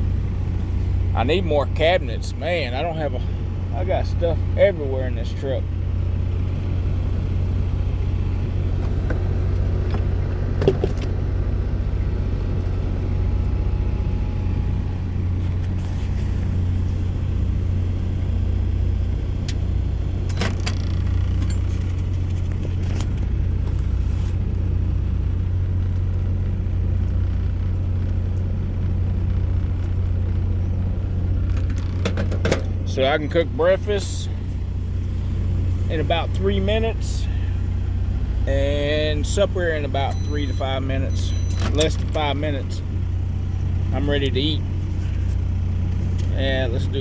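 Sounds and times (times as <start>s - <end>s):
microwave oven humming: 0.0s - 47.0s.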